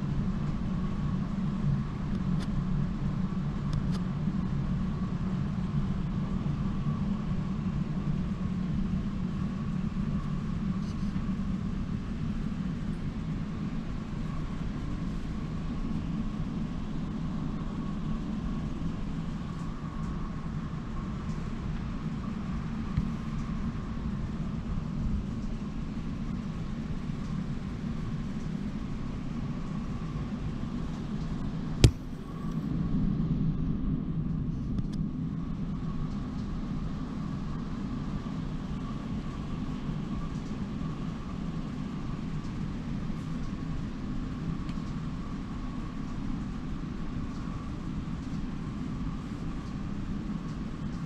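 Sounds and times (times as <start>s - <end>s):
sharp click: 31.8s - 32.1s.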